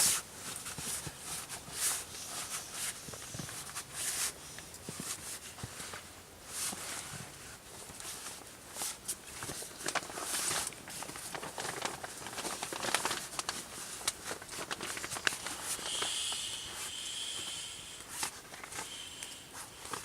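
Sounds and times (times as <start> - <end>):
crunching and rustling: 7.9 - 16.1.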